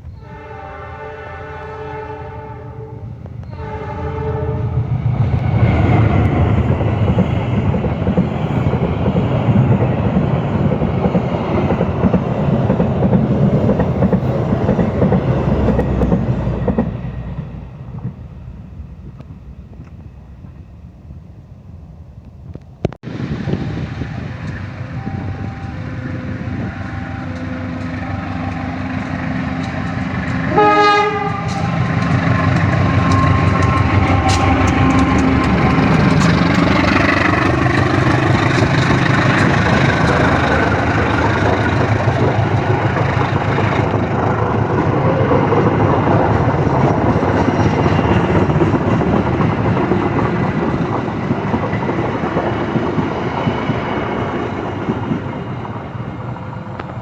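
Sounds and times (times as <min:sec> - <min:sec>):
train rumbling past: 0:00.0 - 0:57.0
train horn blast: 0:00.1 - 0:05.0, 0:25.0 - 0:32.2.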